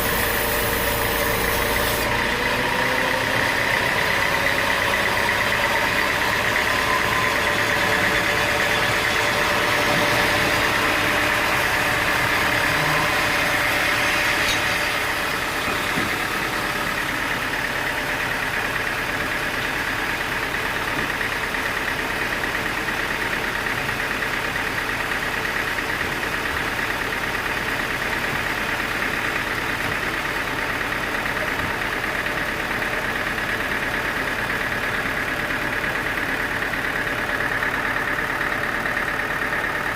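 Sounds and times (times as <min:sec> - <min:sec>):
sawmill engine drone: 0:00.0 - 0:39.9.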